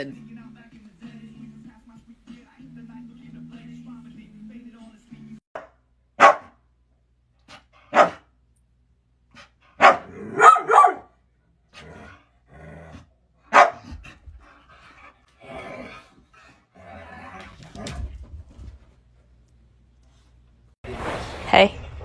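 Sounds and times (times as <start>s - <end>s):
dog barking: 5.6s - 6.6s, 7.9s - 8.3s, 9.8s - 11.2s, 13.5s - 14.0s.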